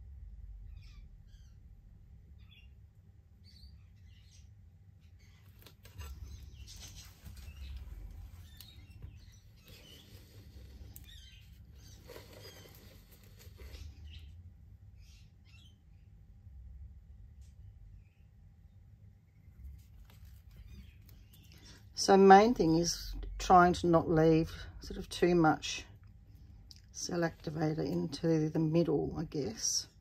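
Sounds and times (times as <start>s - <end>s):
low steady hum: 0.0s - 30.0s
faint bird chirps: 0.5s - 16.2s
soft rustling: 5.2s - 14.1s, 19.6s - 21.8s.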